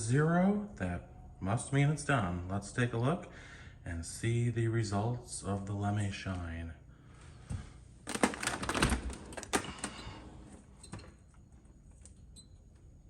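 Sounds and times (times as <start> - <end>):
dishwasher clicks and clatters: 8.1 - 11.2.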